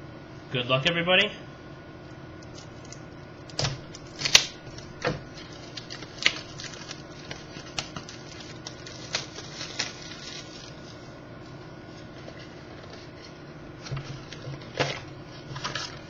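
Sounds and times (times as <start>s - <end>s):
packaging clicks and crinkles: 2.4s - 11.0s, 12.0s - 16.0s.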